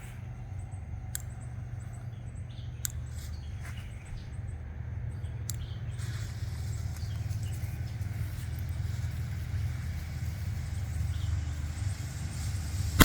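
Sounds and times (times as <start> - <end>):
bird chirps: 0.0 - 9.5
low outdoor rumble: 0.0 - 13.0.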